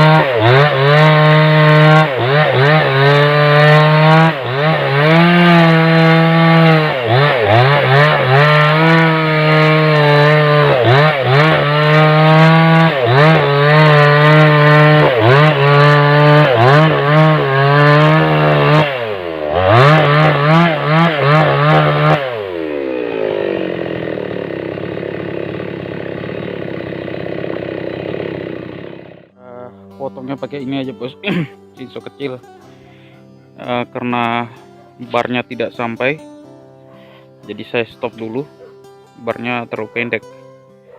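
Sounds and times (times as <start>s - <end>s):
chainsaw cutting log: 0.0s - 29.3s.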